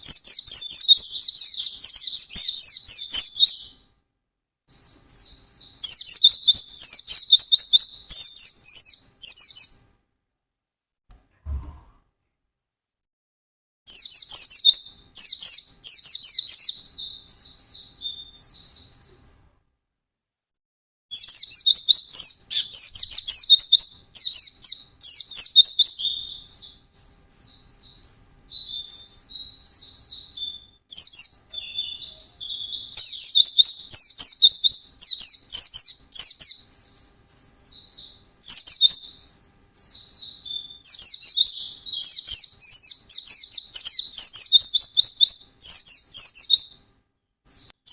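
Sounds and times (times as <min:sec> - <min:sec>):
bird twittering song: 0:00.0 - 0:03.8, 0:04.7 - 0:09.9, 0:13.9 - 0:19.4, 0:21.1 - 0:46.9, 0:47.5 - 0:47.9.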